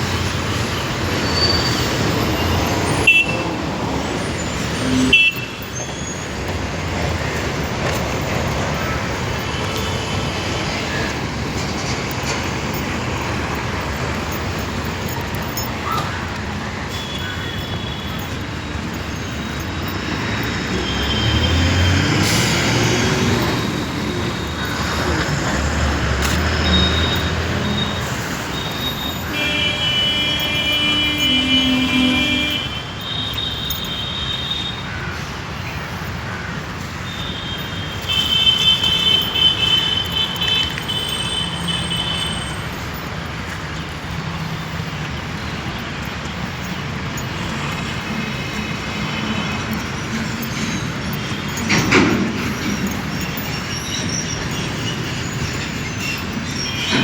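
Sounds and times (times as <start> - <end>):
road traffic passing: 0.0 - 57.0
held horn tone: 1.3 - 15.7, 26.2 - 34.8.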